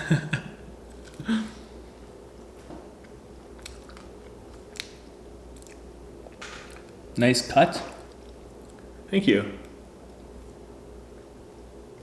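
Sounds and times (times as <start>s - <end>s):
man chewing food: 0.8s - 7.1s, 8.0s - 9.0s.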